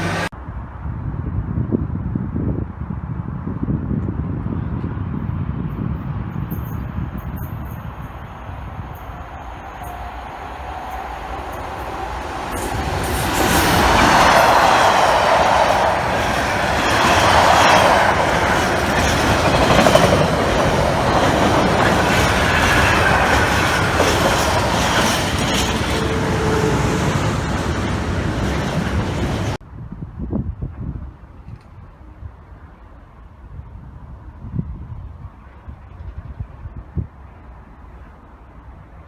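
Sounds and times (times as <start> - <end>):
train wheels clattering over rails: 6.4 - 29.6
train wheels squealing: 6.4 - 29.6.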